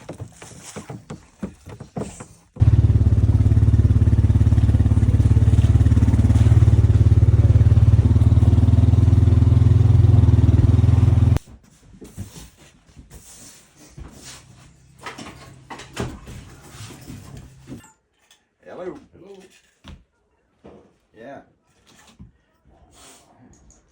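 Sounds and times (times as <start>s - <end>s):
motor engine running: 2.6s - 11.4s.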